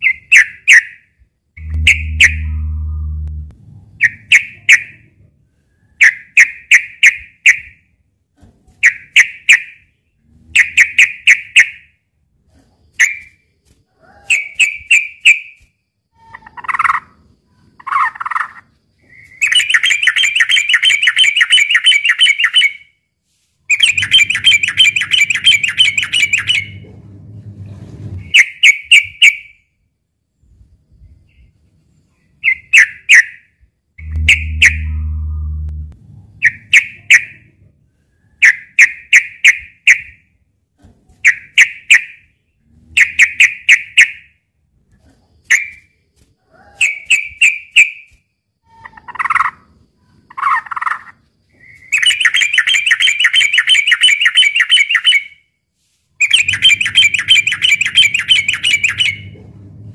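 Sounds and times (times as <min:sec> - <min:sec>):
low hum: 0:01.6 - 0:04.3, 0:23.8 - 0:28.4, 0:34.0 - 0:37.9, 0:56.3 - 0:59.9
bird singing bubbly phrases: 0:01.6 - 0:04.8, 0:34.0 - 0:37.3, 0:56.2 - 0:59.3
bird chattering runs: 0:56.2 - 0:59.3.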